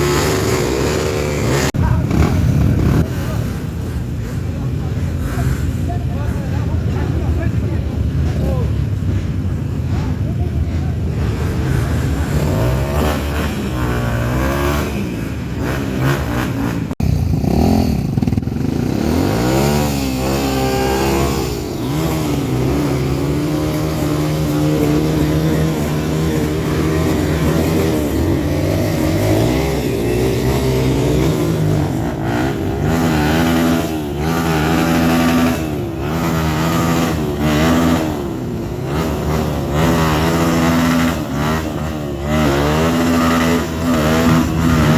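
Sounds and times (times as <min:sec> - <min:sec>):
trail motorcycles revving: 0:00.0 - 0:44.9.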